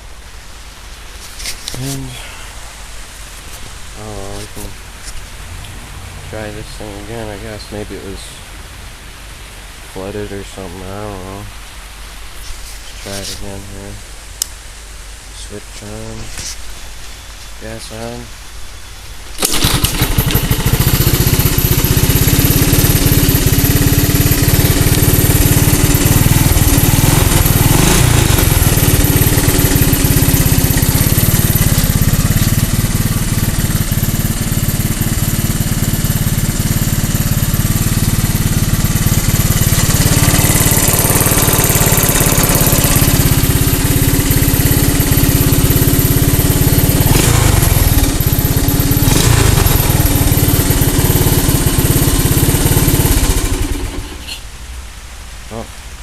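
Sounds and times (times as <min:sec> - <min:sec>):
three-wheeler engine running: 0:19.4 - 0:54.4.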